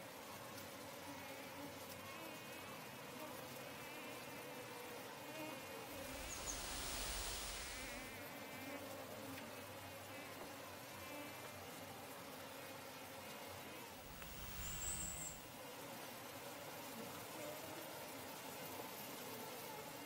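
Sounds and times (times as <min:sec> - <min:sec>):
insects buzzing: 0:01.0 - 0:08.9, 0:13.9 - 0:15.5
rustling noise: 0:06.0 - 0:08.2, 0:14.1 - 0:15.4.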